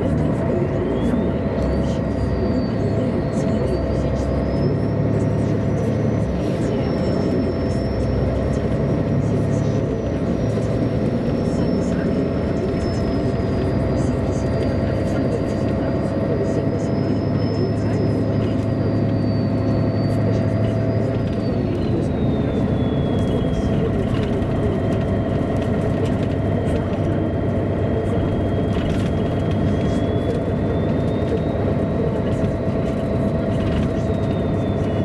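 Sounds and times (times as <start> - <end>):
diesel bus engine: 0.0 - 35.0
road drone: 0.0 - 35.0.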